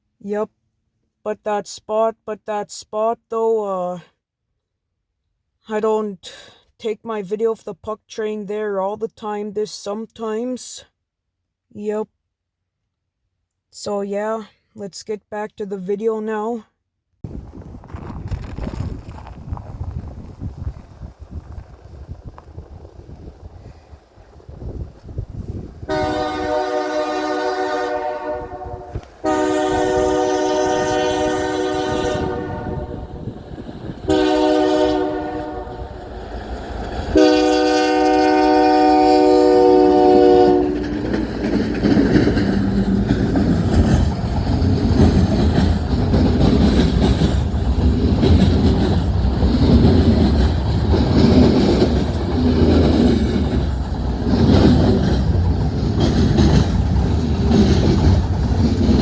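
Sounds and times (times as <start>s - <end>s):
locomotive air horn: 25.9s - 33.2s, 34.1s - 35.9s, 37.1s - 40.9s
train wheels clacking on rails: 40.7s - 59.0s.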